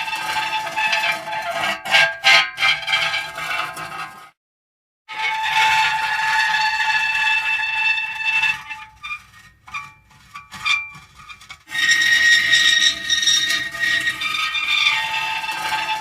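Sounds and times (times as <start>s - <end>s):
metal creaking: 8.6s - 16.0s.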